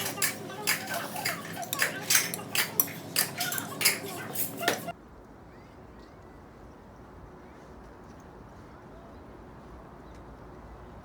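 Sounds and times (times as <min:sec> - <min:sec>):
cutlery clinking against dishes: 0:00.0 - 0:04.9.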